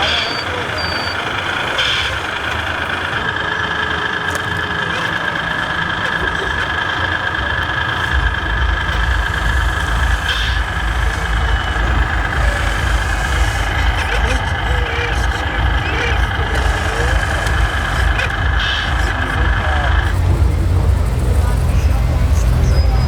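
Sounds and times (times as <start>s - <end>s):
deep pulsing engine rumble: 0.0s - 23.0s
simulated diesel engine idling: 0.0s - 23.0s.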